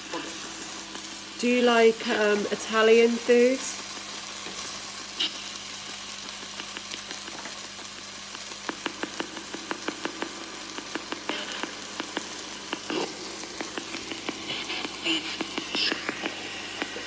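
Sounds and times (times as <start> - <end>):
food sizzling in a frying pan: 0.0 - 17.0
spitting oil popping: 3.8 - 17.0.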